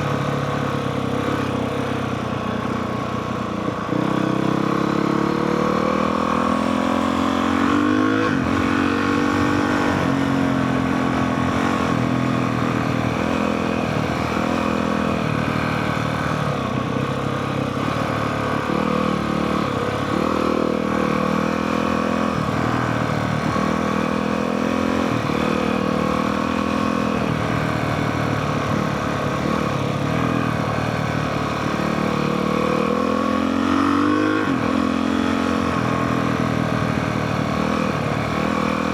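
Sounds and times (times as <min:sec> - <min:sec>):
dirt bike engine revving: 0:04.0 - 0:16.4.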